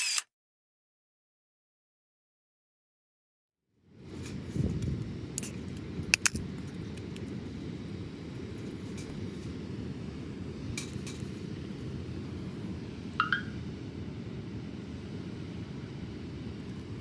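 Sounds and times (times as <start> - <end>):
steady low rumble: 4.0 - 17.0.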